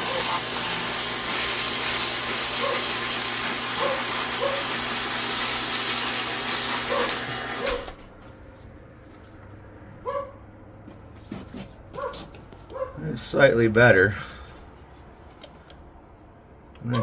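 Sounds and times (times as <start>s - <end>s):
sandpaper hissing on spinning part: 0.0s - 7.8s
power tool motor hum: 0.0s - 8.0s.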